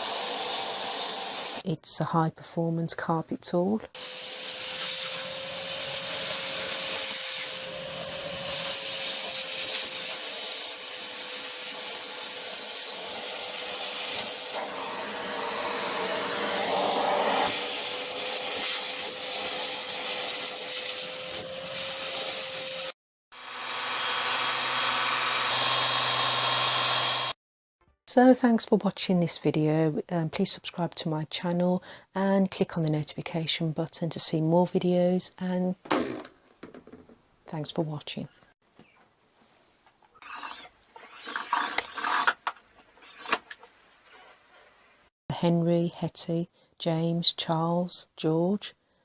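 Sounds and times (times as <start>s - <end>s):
vacuum cleaner on carpet: 0.0s - 1.6s, 4.0s - 27.4s.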